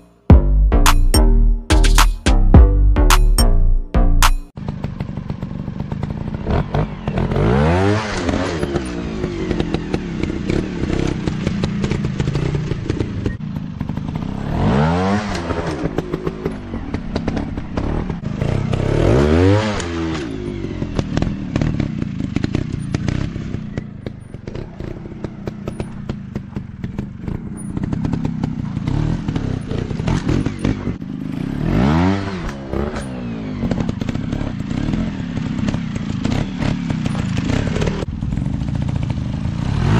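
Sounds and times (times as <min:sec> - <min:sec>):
dirt bike engines revving: 0:04.8 - 0:39.9.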